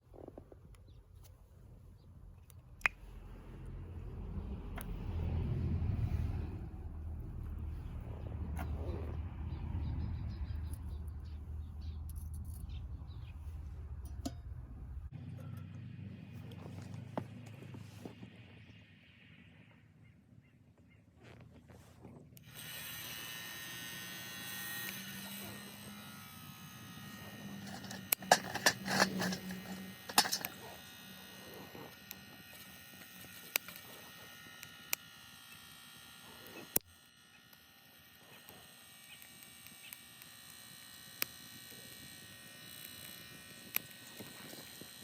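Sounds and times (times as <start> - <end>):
electric fan buzzing: 22.4 - 45.0
sharp clicks and knocks: 27.6 - 30.6.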